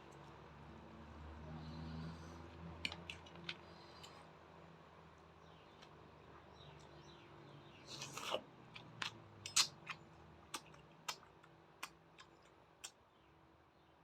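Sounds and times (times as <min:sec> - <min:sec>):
person chewing with crunches: 0:07.8 - 0:13.0.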